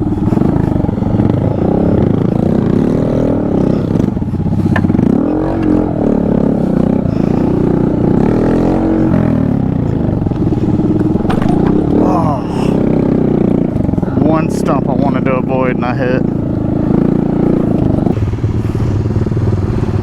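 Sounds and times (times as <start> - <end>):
small motorcycle engine revving: 0.0 - 20.0.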